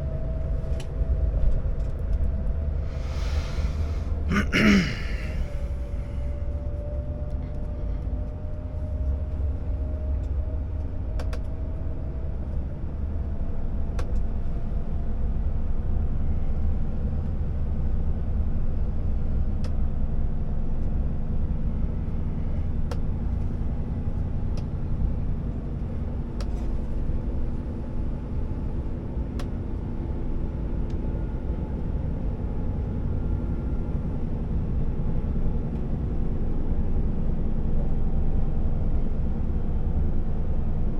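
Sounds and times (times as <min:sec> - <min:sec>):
truck diesel engine driving: 0:00.0 - 0:10.0.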